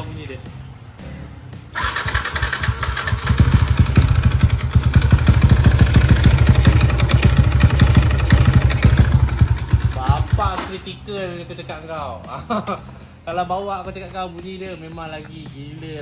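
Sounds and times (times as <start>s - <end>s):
motorcycle engine running unevenly: 1.9s - 10.8s.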